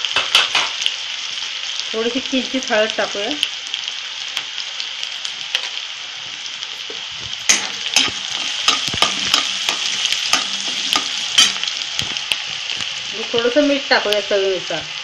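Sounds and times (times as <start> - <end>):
vegetables sizzling in hot oil: 0.0 - 15.0
spatula scraping metal pan: 7.5 - 11.8.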